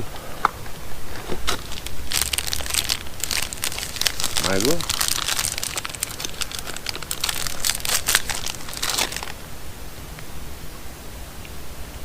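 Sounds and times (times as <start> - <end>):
plastic wrapper crinkling: 1.1 - 9.4.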